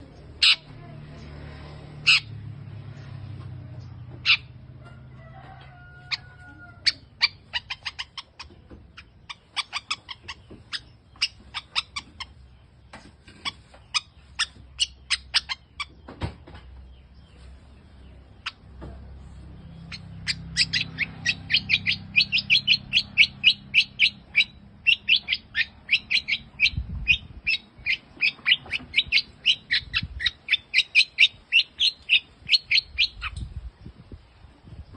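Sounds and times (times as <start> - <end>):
shrike chirping: 19.7 - 33.4.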